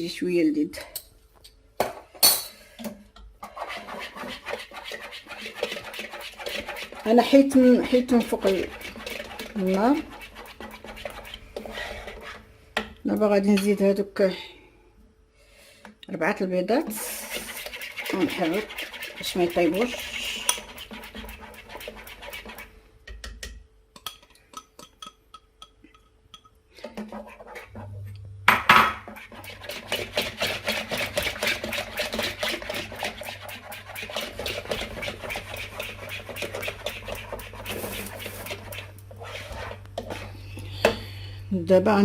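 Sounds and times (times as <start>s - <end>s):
utensil scraping a saucepan: 3.4s - 12.5s, 16.8s - 22.8s, 26.7s - 28.0s, 28.6s - 41.2s.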